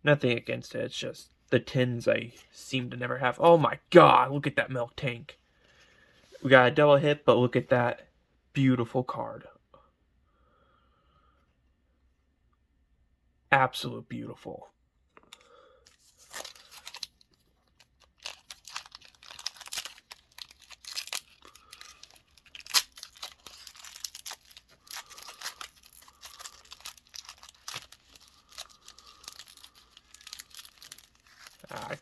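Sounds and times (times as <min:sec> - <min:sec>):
foil wrapper crinkling: 0:15.9 - 0:32.0.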